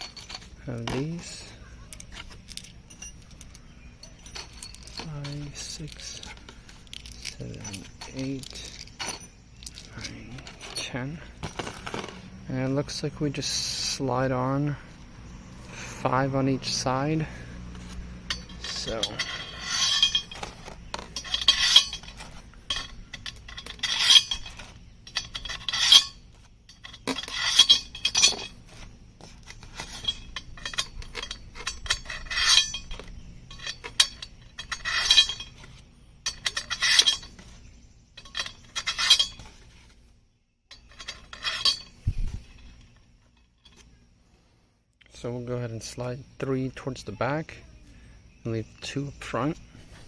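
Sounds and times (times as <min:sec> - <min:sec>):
metal hardware clinking: 0:00.0 - 0:12.2, 0:16.6 - 0:39.7, 0:40.7 - 0:44.0.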